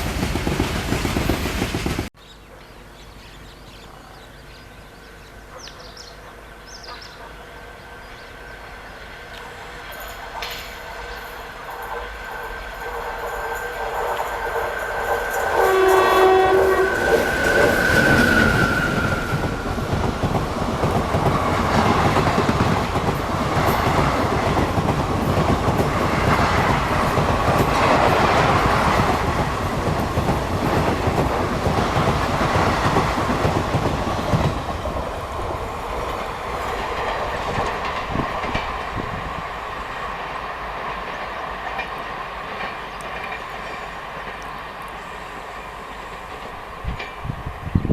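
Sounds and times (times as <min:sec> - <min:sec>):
train wheels clattering: 0:00.0 - 0:02.1, 0:09.3 - 0:39.3, 0:40.1 - 0:45.0
train horn: 0:06.7 - 0:19.6.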